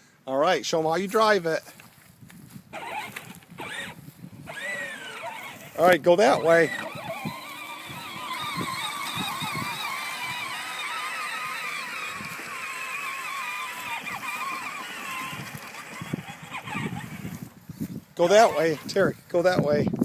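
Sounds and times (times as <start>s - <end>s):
toy tractor motor whine: 2.7s - 17.6s, 18.2s - 19.1s.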